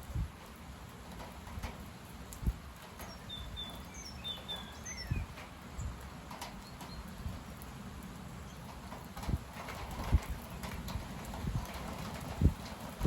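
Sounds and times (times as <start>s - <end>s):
wind rumbling on microphone: 0.0s - 13.0s
small birds chirping: 2.8s - 7.6s, 8.3s - 8.9s.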